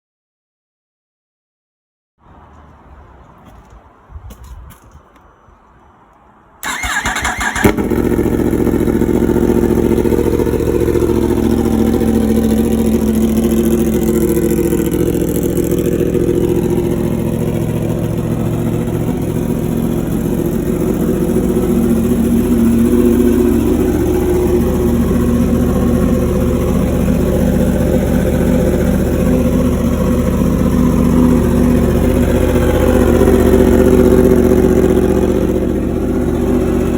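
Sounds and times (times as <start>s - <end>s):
motorcycle starter cranking: 6.6s - 8.2s
motorcycle engine idling: 6.6s - 36.9s.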